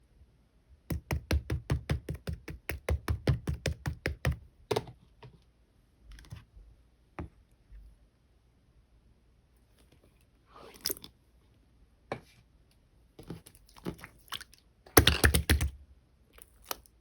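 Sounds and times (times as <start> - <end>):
soft slime squish: 9.6 - 11.5, 13.1 - 17.0.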